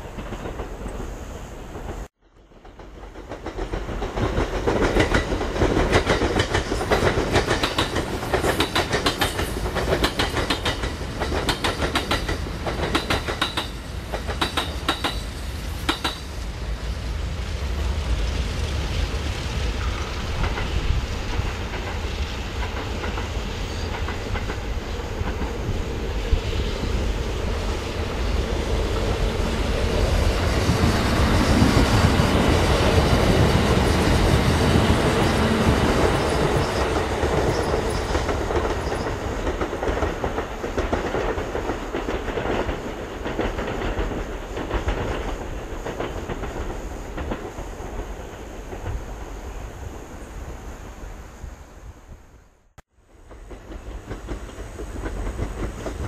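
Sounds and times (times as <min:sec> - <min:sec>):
train rumble: 0:00.0 - 0:56.0
wheels clacking over rail joints: 0:01.7 - 0:16.4, 0:26.9 - 0:49.2, 0:53.2 - 0:56.0.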